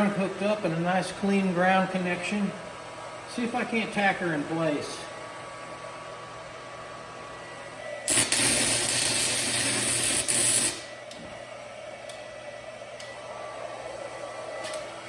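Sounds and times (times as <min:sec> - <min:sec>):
welding arc crackling and hissing: 0:08.1 - 0:11.0.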